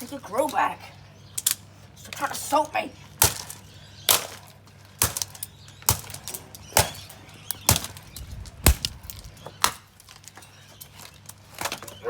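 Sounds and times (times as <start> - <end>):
plastic fan being smashed: 3.2 - 12.0.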